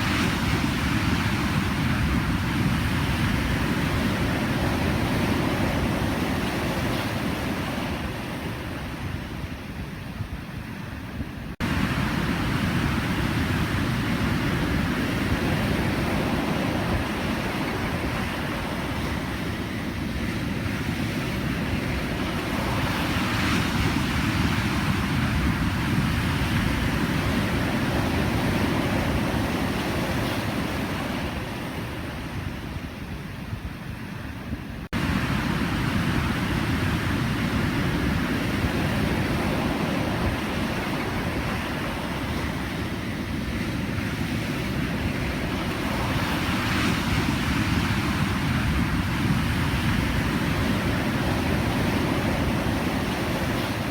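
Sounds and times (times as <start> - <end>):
waves breaking: 11.6 - 32.9, 34.9 - 53.9.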